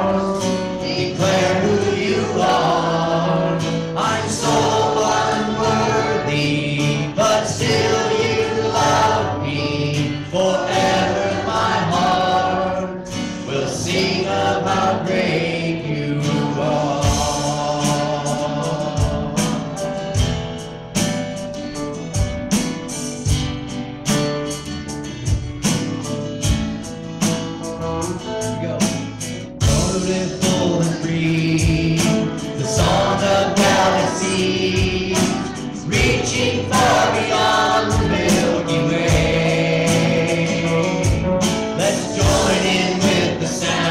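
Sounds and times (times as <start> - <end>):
choir singing over instruments: 0.0 - 20.6, 29.6 - 43.9
drum beat: 7.2 - 9.3, 16.9 - 24.6, 25.2 - 43.9.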